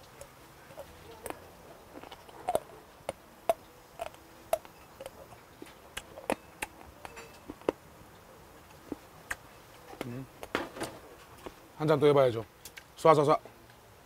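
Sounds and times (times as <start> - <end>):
man chewing with wet mouth clicks: 0.0 - 10.5.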